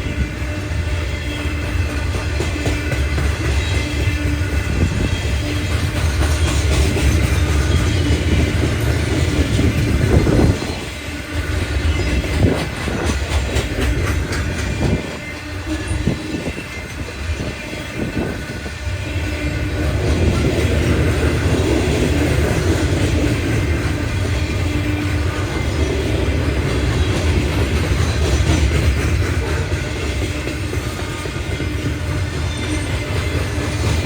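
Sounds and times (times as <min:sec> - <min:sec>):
train rumbling past: 0:00.0 - 0:34.0
train wheels clicking over rails: 0:00.0 - 0:34.0.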